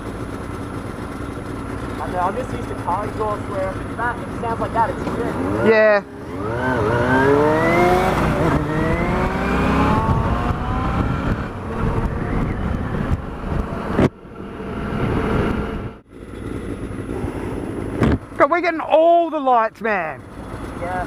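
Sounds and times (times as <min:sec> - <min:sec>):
motorcycle engine accelerating: 0:00.0 - 0:19.2, 0:19.9 - 0:21.0
rushing wind noise: 0:06.9 - 0:16.0.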